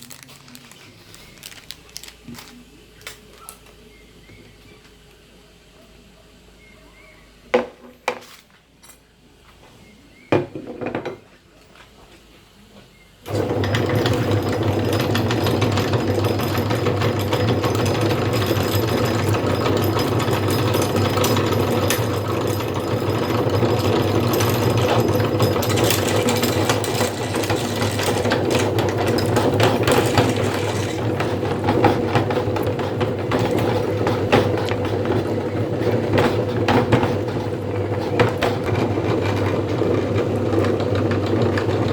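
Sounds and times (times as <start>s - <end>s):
hard candy crackling: 0.0s - 3.8s, 21.3s - 31.4s
electric meat grinder humming: 13.3s - 41.9s.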